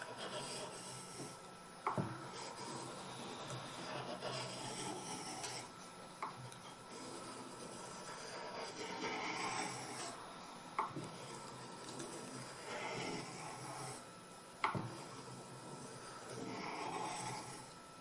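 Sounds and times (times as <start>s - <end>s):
knife scraping on water stone: 2.2s - 5.7s, 6.6s - 10.2s.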